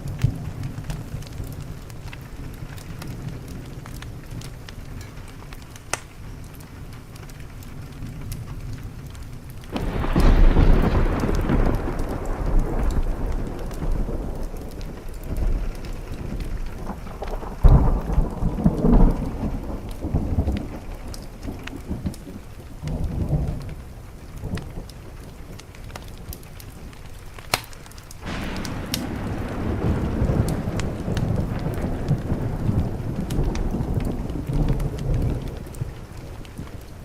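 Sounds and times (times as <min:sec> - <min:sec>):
sharp ticks and pops: 0:00.0 - 0:23.8, 0:24.4 - 0:37.0
rain hissing: 0:00.0 - 0:37.0
rolling thunder: 0:07.9 - 0:26.3, 0:28.2 - 0:37.0.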